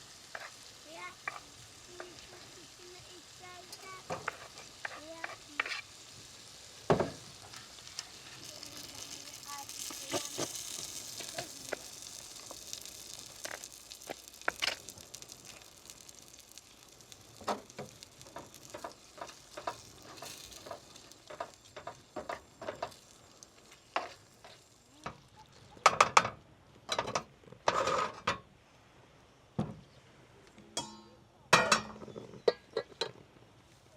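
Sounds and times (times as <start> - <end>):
food sizzling in a pan: 0.0 - 28.3
utensil stirring and tapping pan: 0.2 - 2.8, 3.4 - 5.9, 6.9 - 28.1.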